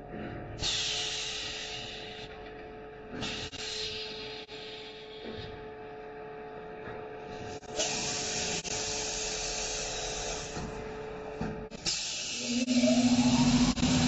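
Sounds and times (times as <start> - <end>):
cutting machine humming: 12.4 - 14.0.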